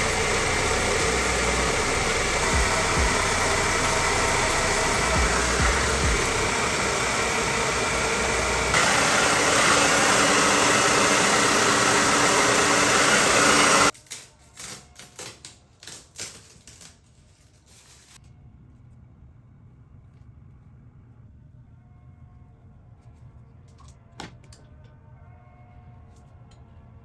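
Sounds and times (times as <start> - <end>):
hair dryer blowing: 0.0 - 13.9.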